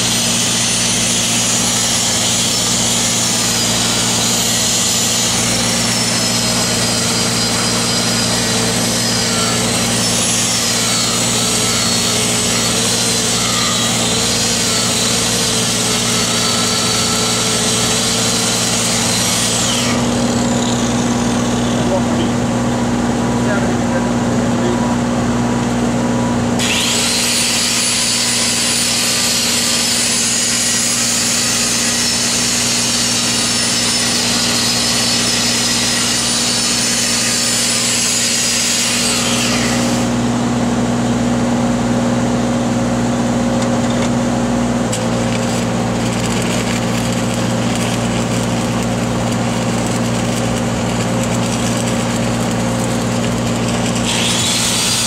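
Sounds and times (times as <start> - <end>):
welder engine running: 0.0 - 55.0
crackling metalwork noise: 44.8 - 55.0
loud high-pitched hiss: 45.0 - 55.0.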